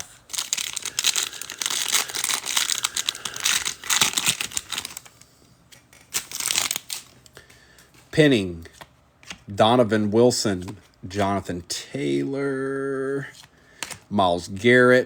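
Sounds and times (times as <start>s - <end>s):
wrapper tearing and crinkling: 0.0s - 5.2s, 5.8s - 7.3s.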